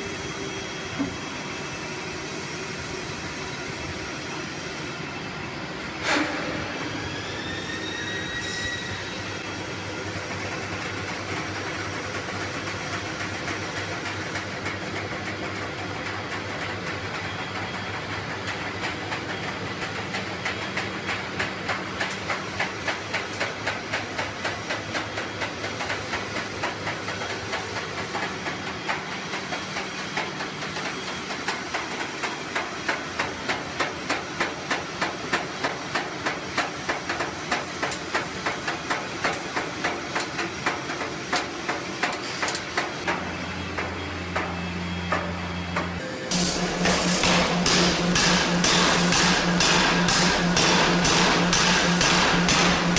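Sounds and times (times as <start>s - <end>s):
machinery drone and hiss: 0.0s - 52.9s
power forging hammer strikes: 42.8s - 52.9s.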